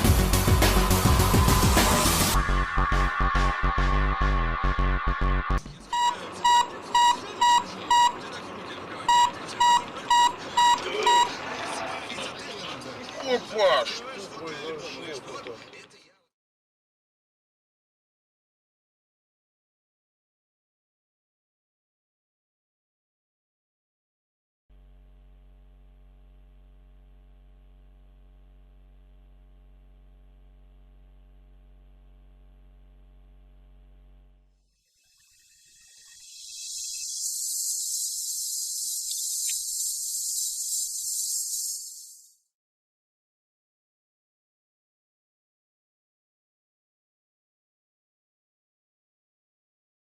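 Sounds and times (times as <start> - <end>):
short high electronic beeps: 5.9 - 8.2, 36.1 - 42.4
low electrical hum: 24.7 - 34.5.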